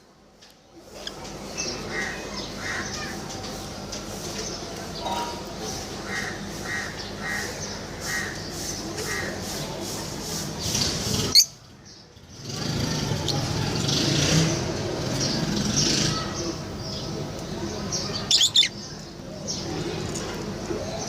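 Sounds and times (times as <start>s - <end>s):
lovebirds chirping: 16.4s - 19.8s.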